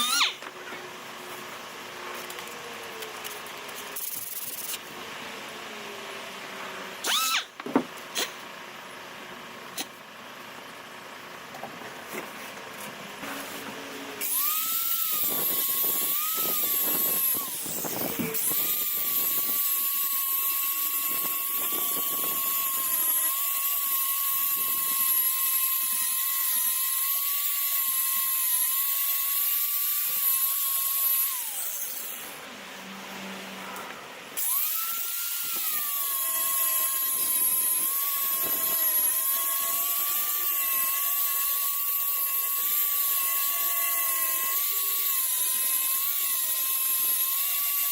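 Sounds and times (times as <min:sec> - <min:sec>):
sander whining on fiberglass: 0:00.0 - 0:07.6, 0:12.1 - 0:47.9.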